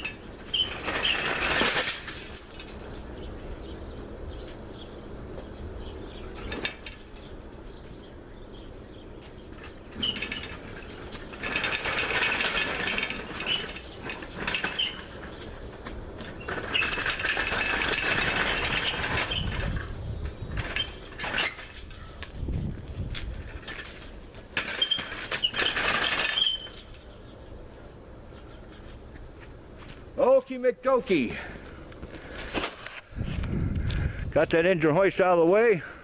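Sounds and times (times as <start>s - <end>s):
metal hoist frame rattling: 0.0s - 4.4s, 6.2s - 8.2s, 9.3s - 27.4s.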